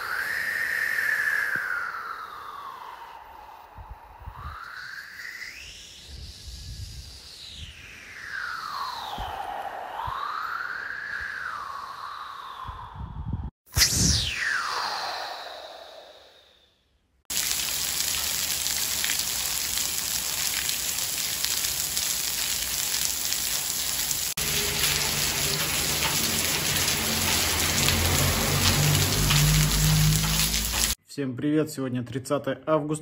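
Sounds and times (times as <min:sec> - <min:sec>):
falling whoosh: 0:00.1 - 0:16.6
steady rushing hiss: 0:24.0 - 0:31.0.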